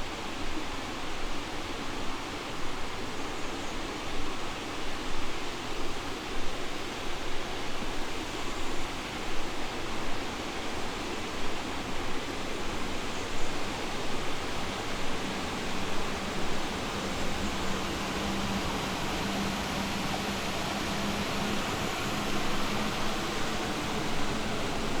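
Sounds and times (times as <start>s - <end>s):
river water rushing: 12.6s - 25.0s
steady low hum: 13.1s - 25.0s.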